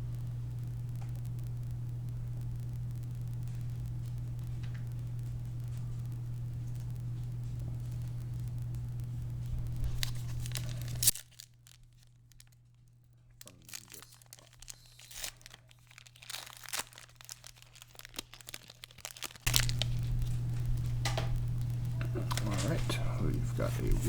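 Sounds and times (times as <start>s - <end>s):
low electrical hum: 0.0s - 24.0s
crinkling and rustling of cards: 3.4s - 24.0s
foil wrapper tearing open: 9.5s - 24.0s.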